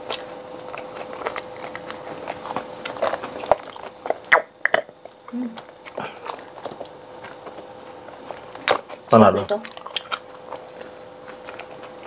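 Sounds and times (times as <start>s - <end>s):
faint steady hum: 0.0s - 12.0s
mouth chewing food: 0.0s - 12.0s.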